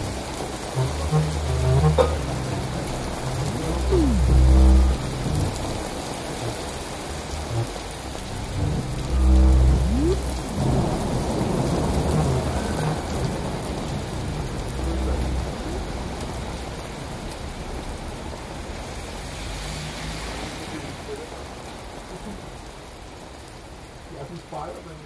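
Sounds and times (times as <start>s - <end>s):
deep low rumble: 0.0s - 17.0s
steady rain-like hiss: 0.0s - 25.0s.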